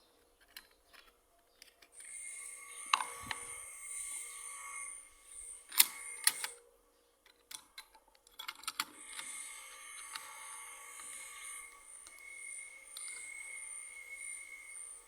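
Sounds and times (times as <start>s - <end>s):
steady high hum: 2.0s - 6.6s, 8.8s - 15.0s.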